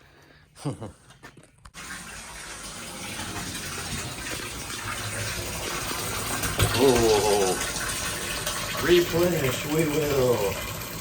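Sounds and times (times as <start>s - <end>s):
water gushing into bathtub: 1.7s - 11.0s.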